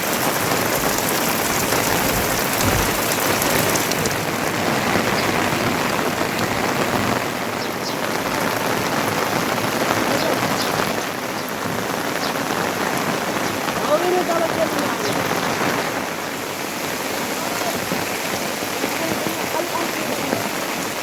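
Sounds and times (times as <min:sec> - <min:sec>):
raindrop taps: 0:00.0 - 0:15.8
heavy rain falling: 0:00.0 - 0:21.0.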